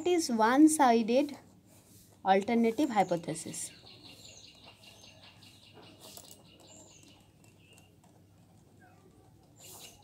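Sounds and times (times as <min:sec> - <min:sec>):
faint birds chirping: 0:00.0 - 0:10.0.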